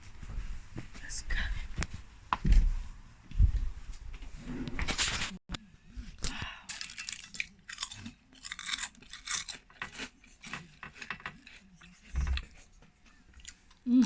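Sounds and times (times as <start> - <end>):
person chewing crunchy food: 5.9 - 13.9.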